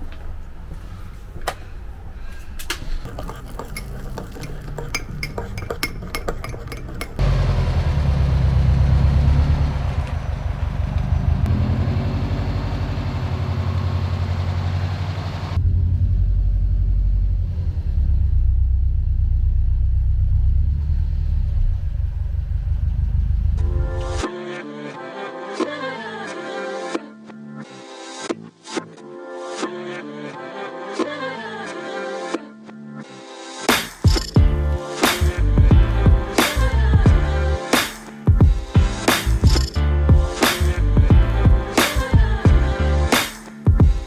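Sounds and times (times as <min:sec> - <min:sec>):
spoon clinking on crockery: 0:03.1 - 0:07.2
loud low rumble: 0:07.2 - 0:24.2
music: 0:23.6 - 0:44.0.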